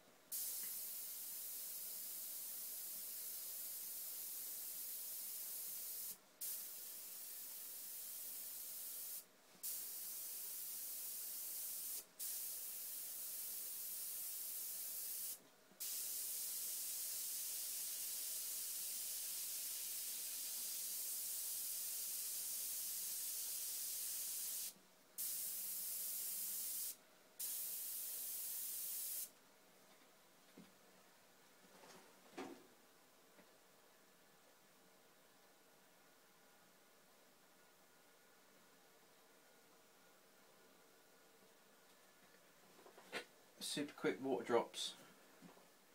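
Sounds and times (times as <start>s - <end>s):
airbrush spraying hiss: 0.3s - 29.4s.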